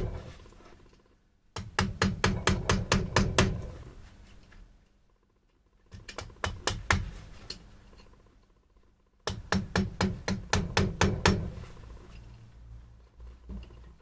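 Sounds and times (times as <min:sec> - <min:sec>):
hammer striking chisel into wood: 0:01.6 - 0:03.8, 0:05.9 - 0:07.2, 0:09.2 - 0:11.6.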